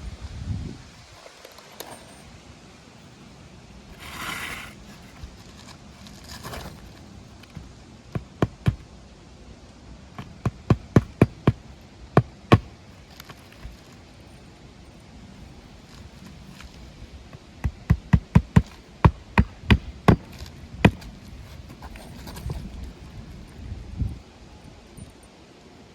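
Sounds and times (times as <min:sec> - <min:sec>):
brief scraping: 0:03.9 - 0:07.0.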